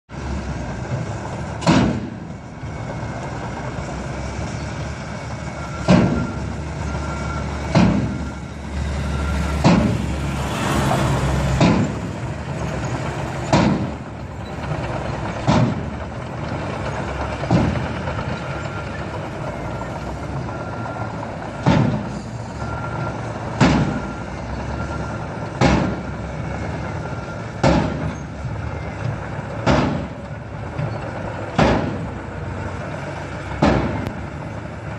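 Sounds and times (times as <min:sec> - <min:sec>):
truck engine running: 0:00.1 - 0:34.9
loud sharp bangs: 0:01.6 - 0:02.2, 0:09.5 - 0:10.1, 0:13.4 - 0:14.0, 0:21.6 - 0:22.1, 0:23.6 - 0:24.0, 0:27.6 - 0:28.1, 0:29.6 - 0:30.2, 0:31.6 - 0:32.1.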